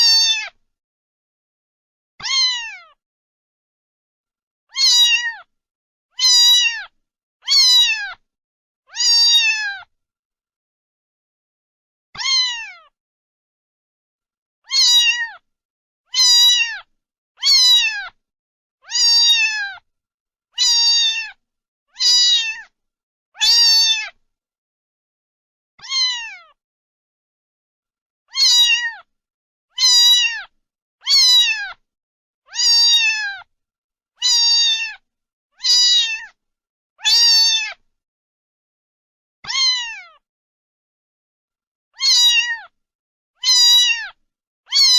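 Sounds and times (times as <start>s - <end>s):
cat meowing: 0.0s - 0.6s, 2.2s - 3.0s, 4.7s - 5.5s, 6.2s - 8.2s, 8.9s - 9.9s, 12.2s - 13.0s, 14.6s - 15.4s, 16.1s - 18.2s, 18.8s - 19.8s, 20.6s - 21.4s, 22.0s - 22.7s, 23.4s - 24.2s, 25.8s - 26.6s, 28.3s - 29.1s, 29.7s - 31.8s, 32.5s - 33.5s, 34.2s - 35.0s, 35.6s - 36.4s, 37.0s - 37.8s, 39.4s - 40.2s, 42.0s - 42.8s, 43.4s - 44.9s.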